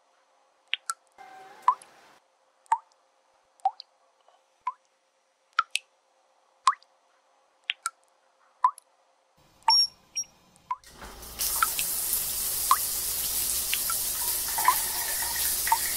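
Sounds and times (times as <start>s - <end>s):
water dripping from tap: 10.7s - 15.9s.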